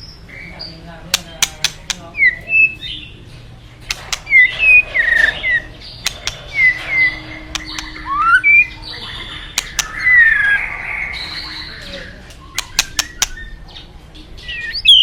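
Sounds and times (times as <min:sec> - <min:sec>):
sharp clicks: 0:01.1 - 0:02.1, 0:03.8 - 0:04.5, 0:06.0 - 0:06.7, 0:07.5 - 0:08.0, 0:09.6 - 0:10.0, 0:12.6 - 0:13.4
bird singing whistled notes: 0:14.4 - 0:15.0.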